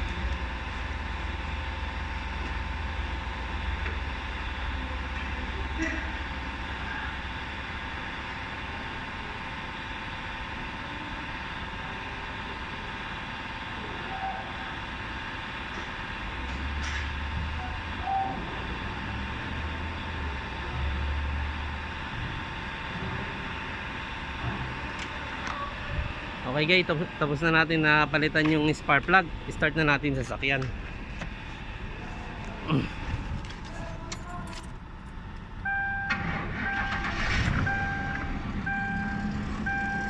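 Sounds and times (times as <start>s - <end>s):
steady mechanical hum: 0.0s - 40.0s
low rumbling: 17.2s - 40.0s.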